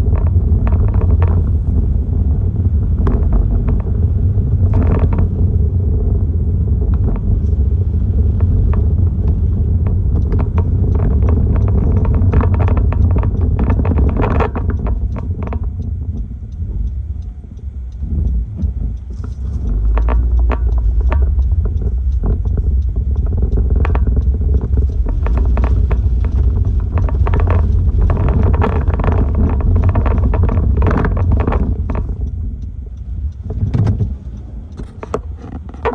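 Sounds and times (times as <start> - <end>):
sharp ticks and rattles: 0.0 - 35.9
strong wind buffeting microphone: 0.0 - 35.9.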